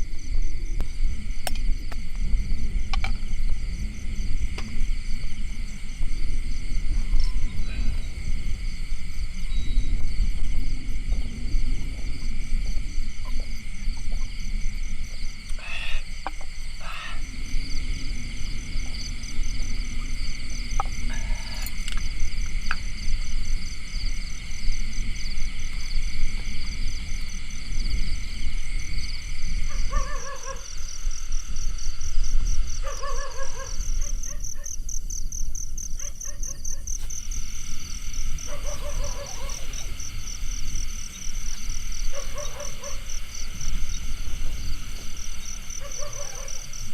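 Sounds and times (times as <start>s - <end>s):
insects shrilling: 0.0s - 46.9s
frog-like animal call: 6.8s - 8.3s, 15.5s - 22.1s, 29.6s - 31.4s, 32.8s - 34.8s, 38.2s - 40.4s, 41.0s - 44.6s, 45.2s - 46.9s.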